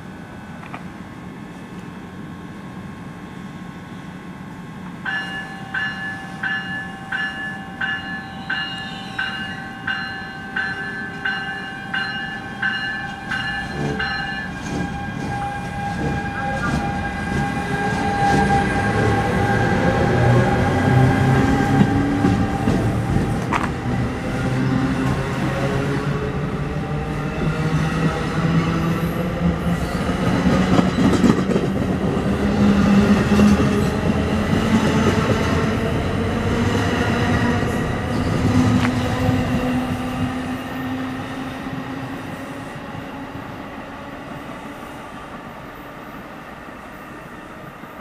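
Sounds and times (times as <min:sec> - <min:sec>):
train rumble: 0:00.0 - 0:46.6
rising locomotive whine: 0:00.0 - 0:48.0
locomotive bell ringing: 0:05.0 - 0:14.6.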